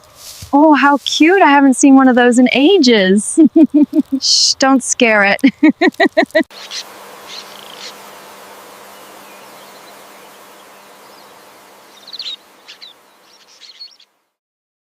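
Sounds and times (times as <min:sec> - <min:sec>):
insect buzz: 0:00.0 - 0:14.4
high bird chirps: 0:06.5 - 0:08.0, 0:08.9 - 0:14.1.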